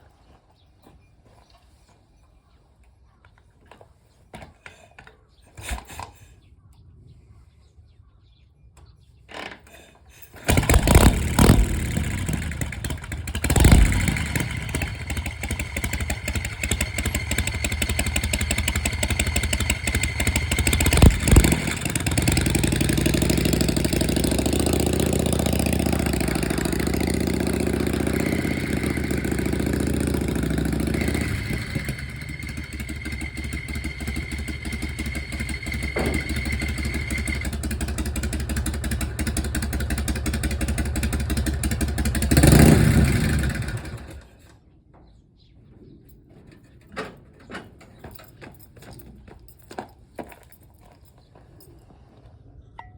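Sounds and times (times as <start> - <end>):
motorcycle engine starting and idling: 8.9 - 44.7.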